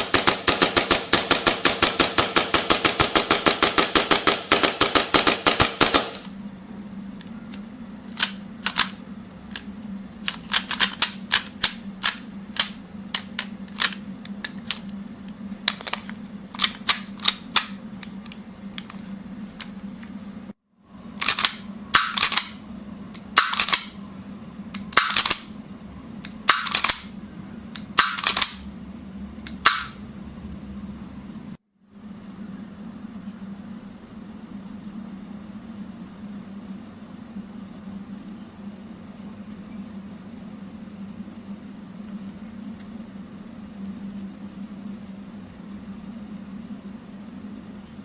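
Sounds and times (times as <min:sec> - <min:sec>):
airsoft pistol shots: 0:00.0 - 0:06.3, 0:29.6 - 0:30.0
low steady hum: 0:00.0 - 0:48.0.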